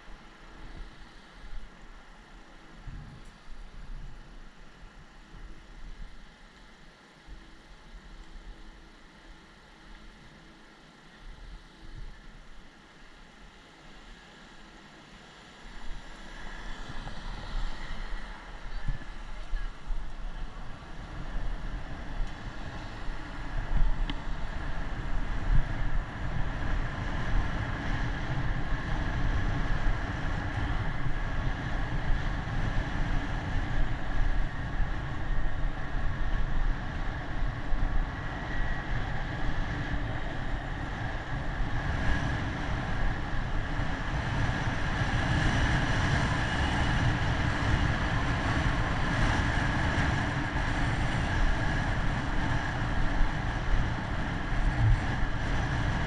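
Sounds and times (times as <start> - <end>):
road noise: 0.0 - 56.0
wind buffeting microphone: 15.7 - 56.0.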